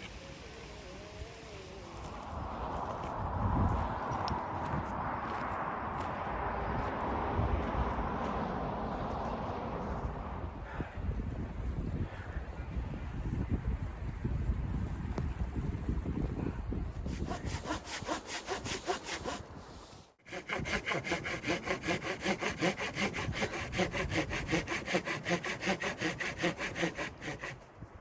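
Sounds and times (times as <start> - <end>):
wind noise: 0.0 - 21.1
hand saw cutting wood: 17.0 - 27.8.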